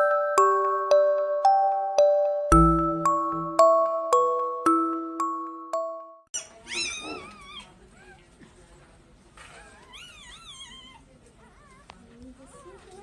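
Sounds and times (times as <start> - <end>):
small animal crying: 6.4 - 8.2, 9.7 - 11.0.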